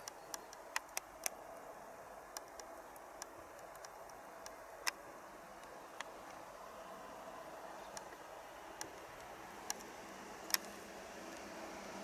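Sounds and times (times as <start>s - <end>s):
sharp ticks: 0.0s - 1.7s, 2.3s - 6.4s, 7.8s - 11.5s
low hiss: 0.0s - 12.0s
electric train approaching: 4.3s - 12.0s.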